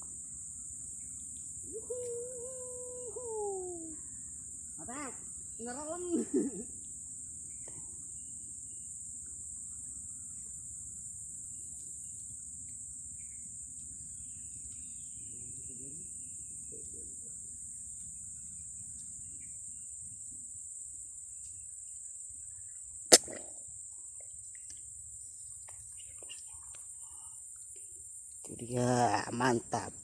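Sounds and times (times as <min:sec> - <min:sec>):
crickets chirping: 0:00.0 - 0:30.0.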